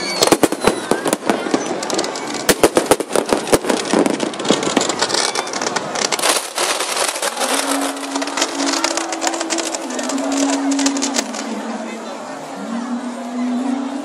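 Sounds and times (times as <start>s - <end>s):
fireworks crackling: 0.0s - 14.0s
sharp firework bangs: 0.1s - 9.4s.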